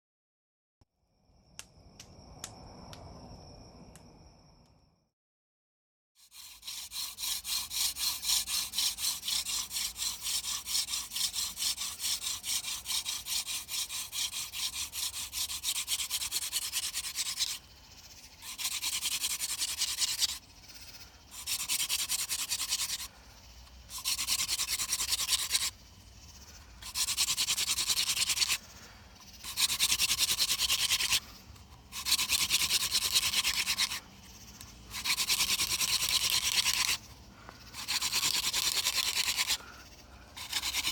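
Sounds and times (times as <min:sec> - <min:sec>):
wooden spindle rubbing on hearth board: 0:06.3 - 0:17.6, 0:18.3 - 0:20.6, 0:21.3 - 0:23.1, 0:23.9 - 0:25.9, 0:26.8 - 0:28.6, 0:29.3 - 0:37.1, 0:37.7 - 0:39.7, 0:40.3 - 0:40.9.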